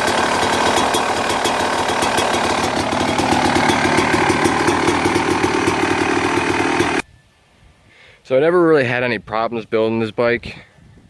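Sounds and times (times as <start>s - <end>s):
two-stroke engine running: 0.0s - 7.0s.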